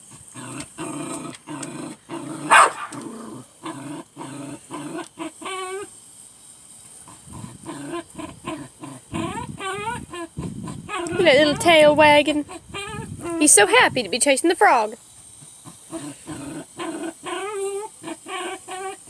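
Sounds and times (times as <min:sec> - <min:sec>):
dog growling: 0:00.1 - 0:05.9, 0:07.0 - 0:13.6, 0:15.5 - 0:19.0
dog barking: 0:02.5 - 0:03.0
dog whining: 0:09.1 - 0:11.8, 0:12.4 - 0:13.6, 0:15.9 - 0:19.0.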